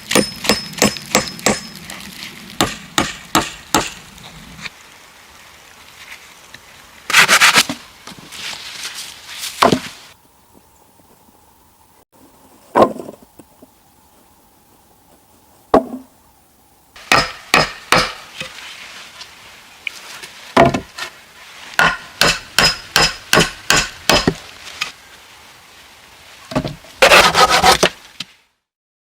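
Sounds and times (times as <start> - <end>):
tool striking wood: 0.1 - 1.7, 2.6 - 4.0, 17.0 - 18.3, 21.8 - 24.4
rough scraping: 7.0 - 10.2, 26.9 - 28.0.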